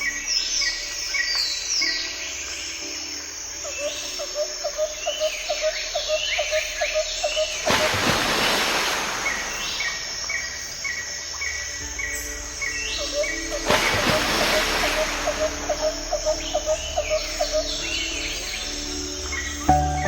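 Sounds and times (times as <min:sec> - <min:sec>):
swooping bird calls: 0:12.7 - 0:18.3.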